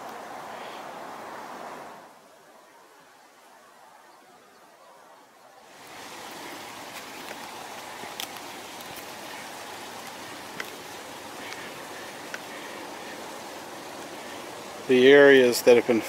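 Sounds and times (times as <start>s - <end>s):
running water: 0.0s - 16.0s.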